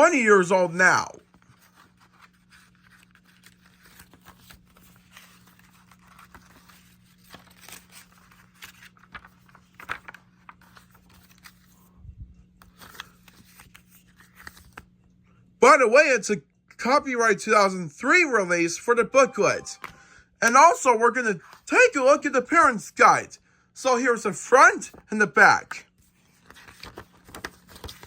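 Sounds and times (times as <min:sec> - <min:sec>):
paper booklet rustling: 0:01.1 - 0:15.0, 0:24.2 - 0:28.0.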